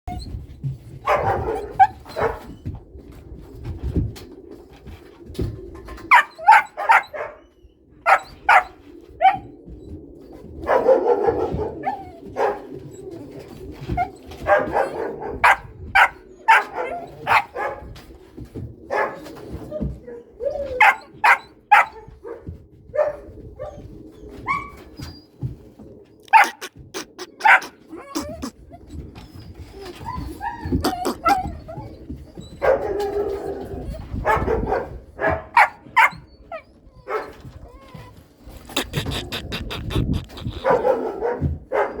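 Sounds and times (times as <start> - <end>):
puppies barking in high yips: 26.2 - 28.5, 29.8 - 32.8, 38.7 - 42.0.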